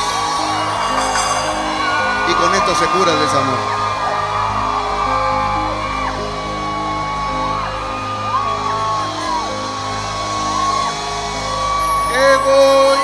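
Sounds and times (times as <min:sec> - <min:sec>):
sliding high notes: 0:00.0 - 0:13.0.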